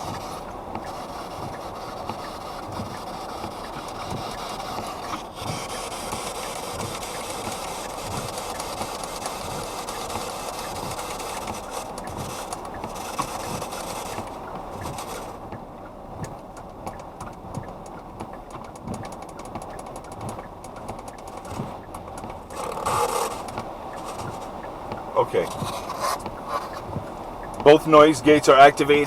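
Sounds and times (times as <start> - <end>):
radio static hiss: 0.0 - 15.5, 21.1 - 29.0
rapid clicks: 0.0 - 29.0.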